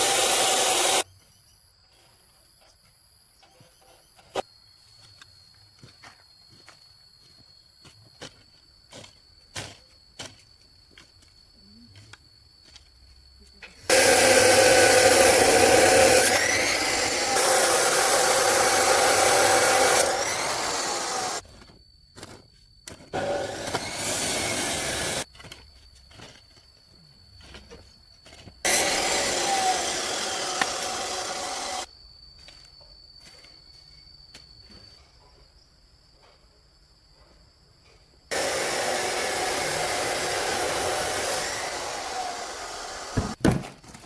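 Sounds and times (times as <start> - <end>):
blowing machine rushing air: 0.0 - 1.0, 13.9 - 21.4, 23.2 - 25.2, 28.7 - 31.9, 38.3 - 43.4.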